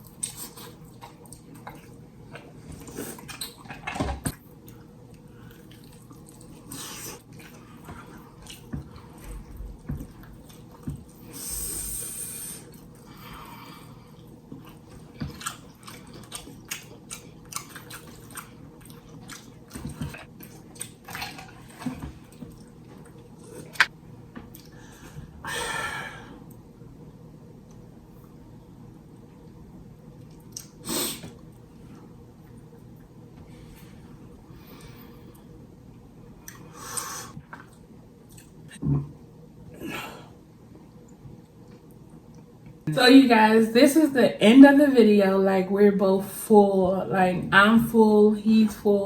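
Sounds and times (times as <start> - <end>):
wet chewing and lip smacks: 14.6 - 21.5, 30.2 - 30.8, 37.5 - 38.8.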